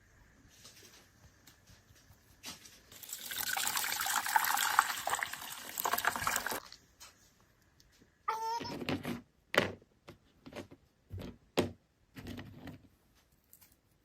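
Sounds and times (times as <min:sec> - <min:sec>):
water pouring: 0:02.9 - 0:06.8.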